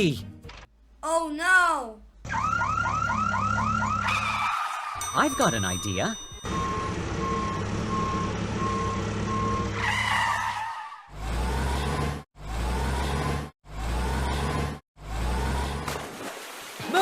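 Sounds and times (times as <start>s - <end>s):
tyres squealing skid: 9.6s - 13.4s
engine revving up: 11.1s - 15.8s.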